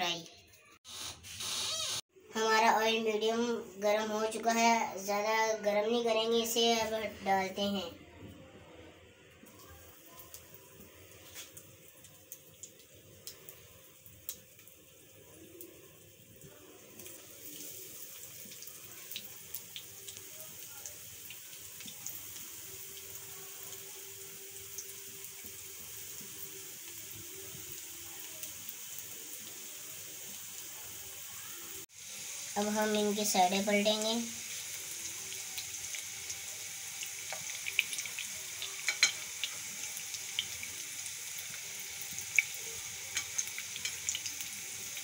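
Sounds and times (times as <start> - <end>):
food sizzling in oil: 9.4 - 45.0.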